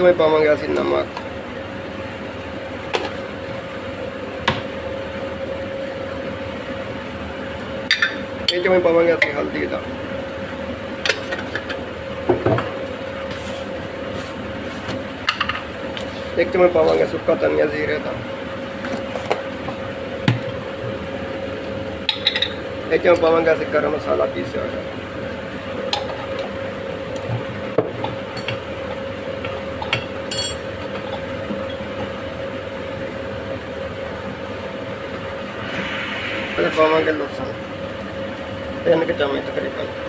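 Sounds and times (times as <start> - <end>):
mechanical background hum: 0.0 - 40.0
metal spoon clinking on pot: 29.9 - 30.8.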